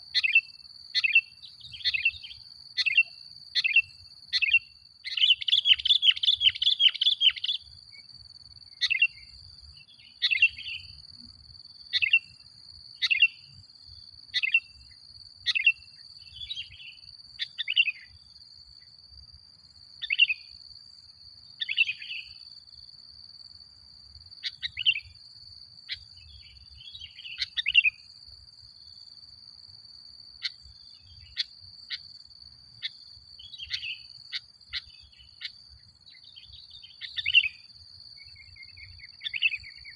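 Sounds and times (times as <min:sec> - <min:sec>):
bulbul singing: 0:00.2 - 0:07.7.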